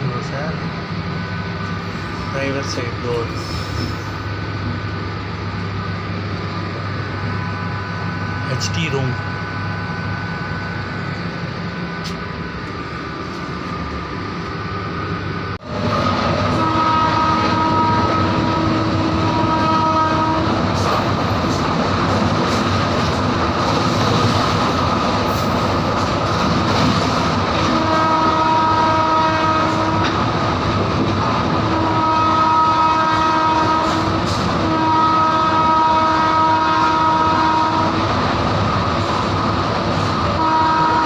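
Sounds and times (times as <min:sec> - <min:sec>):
train rumbling and rattling: 0:00.0 - 0:41.0
multi-note train horn: 0:16.4 - 0:20.6, 0:27.6 - 0:30.2, 0:31.7 - 0:38.0, 0:40.4 - 0:41.0.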